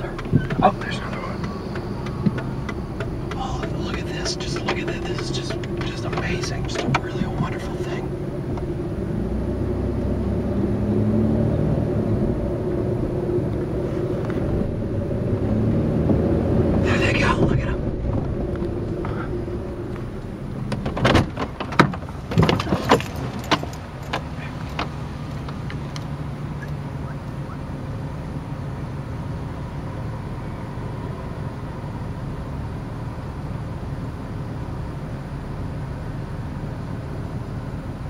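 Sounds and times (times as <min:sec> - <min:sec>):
sharp knocks and rattles: 0:00.0 - 0:08.7, 0:20.5 - 0:25.8
vehicle engine humming: 0:00.0 - 0:38.0.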